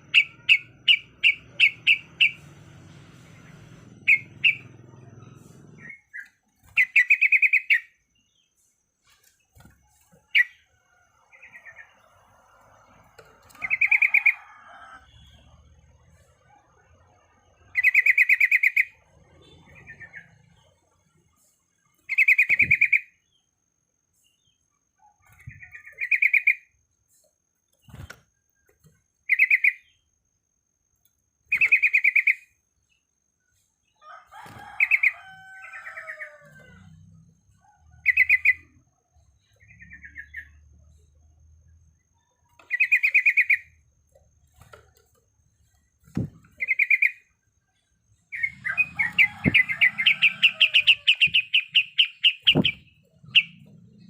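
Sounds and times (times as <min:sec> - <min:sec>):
bird chattering calls: 0:48.3 - 0:54.0.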